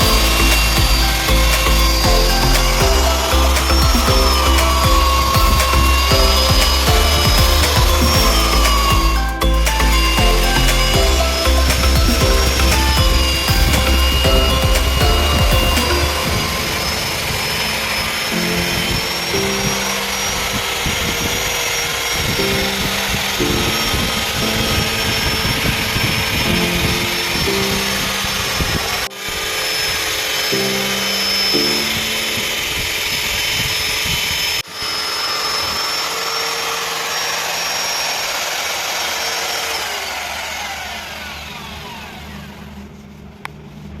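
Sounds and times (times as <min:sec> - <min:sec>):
background music: 0:00.0 - 0:33.4
power tool whining brush wheel: 0:00.0 - 0:43.3.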